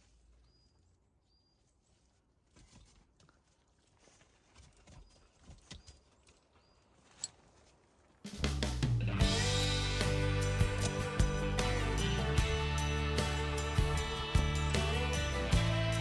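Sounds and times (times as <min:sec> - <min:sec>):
guitar background music: 0:09.0 - 0:16.0.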